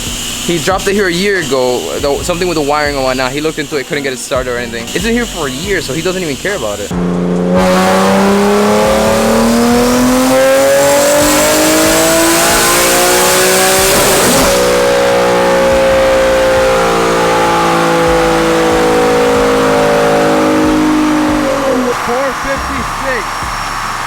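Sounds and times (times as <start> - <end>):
car engine revving on dyno: 0.0 - 24.0
engine and rollers winding down: 0.0 - 24.0.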